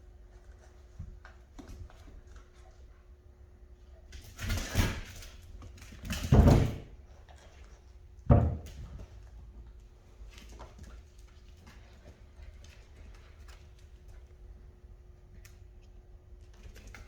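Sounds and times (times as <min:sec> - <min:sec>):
dull knocks on something solid: 0:08.3 - 0:08.6.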